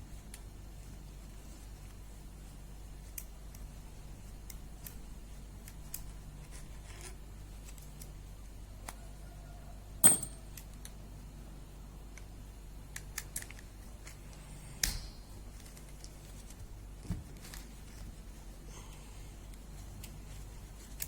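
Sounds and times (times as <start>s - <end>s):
steady low hum: 0.0s - 21.0s
metal tools clinking: 10.0s - 10.5s.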